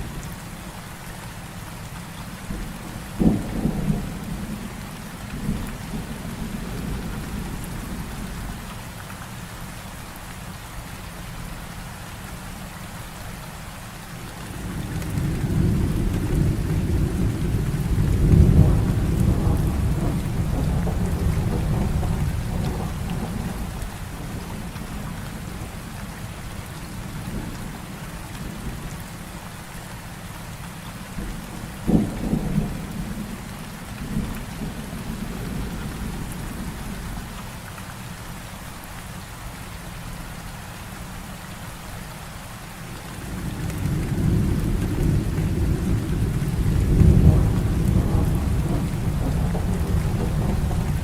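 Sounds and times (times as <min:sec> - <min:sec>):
heavy rain falling: 0:00.0 - 0:51.0
thunder rumbling: 0:14.4 - 0:26.0, 0:31.2 - 0:37.3, 0:43.0 - 0:51.0.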